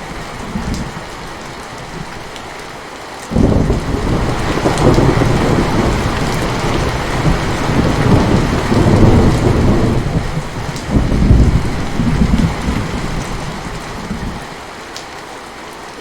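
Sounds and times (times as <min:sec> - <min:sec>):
heavy rain: 0:00.0 - 0:16.0
rolling thunder: 0:03.3 - 0:14.5.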